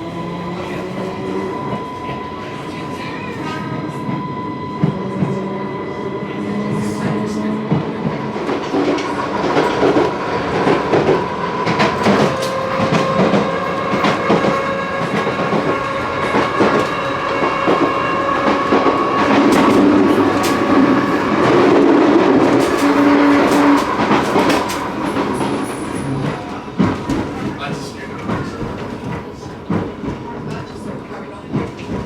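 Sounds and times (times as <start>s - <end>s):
train running rumble: 0.0s - 32.0s
train whine: 0.0s - 32.0s
train wheels clicking over rail joints: 8.4s - 32.0s.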